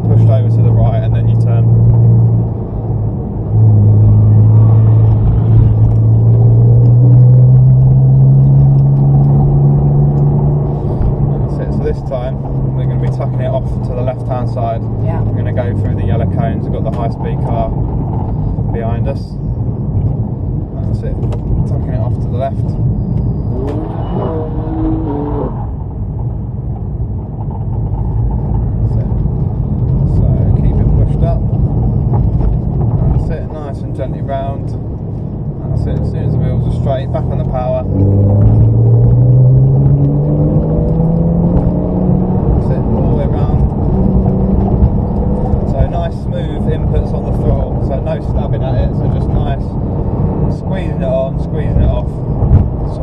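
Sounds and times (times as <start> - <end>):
car engine revving from cabin: 0.0 - 17.7, 23.2 - 25.9, 35.6 - 53.0
road rumble: 0.0 - 53.0.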